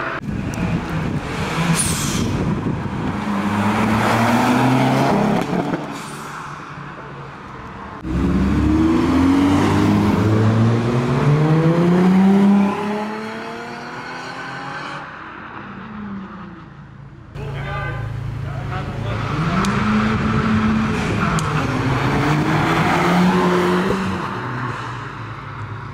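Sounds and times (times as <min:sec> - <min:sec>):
passing car: 0:00.0 - 0:25.9
car engine accelerating hard: 0:08.0 - 0:15.0, 0:18.3 - 0:24.6.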